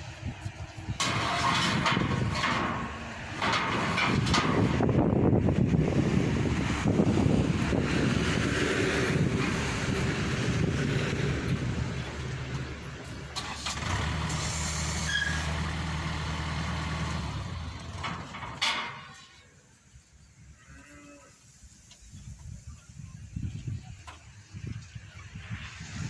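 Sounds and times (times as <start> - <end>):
diesel engine running: 0.0 - 19.1.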